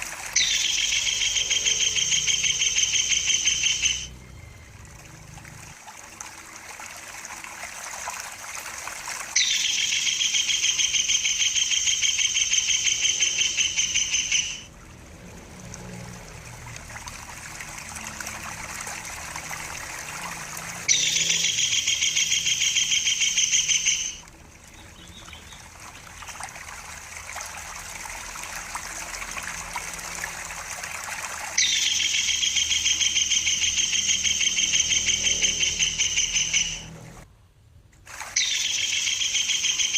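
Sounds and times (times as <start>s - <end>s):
trickling water: 0.0s - 39.9s
kingfisher chattering calls: 0.3s - 4.1s, 9.4s - 14.7s, 20.9s - 24.2s, 31.6s - 36.9s, 38.4s - 39.9s.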